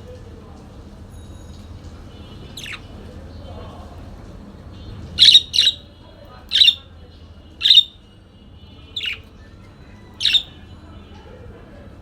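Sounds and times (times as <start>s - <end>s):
parakeet squawking: 2.5s - 2.9s, 5.2s - 5.9s, 6.5s - 6.9s, 7.6s - 8.0s, 8.9s - 9.3s, 10.0s - 10.6s.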